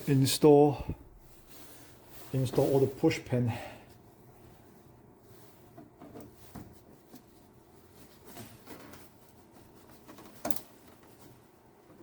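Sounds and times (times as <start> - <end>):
handling rustles: 0.0 - 3.3.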